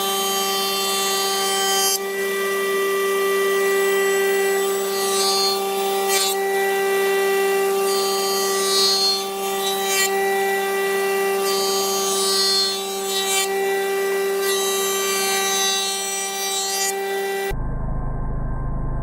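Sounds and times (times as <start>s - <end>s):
power tool rasping on wood: 0.0s - 17.5s.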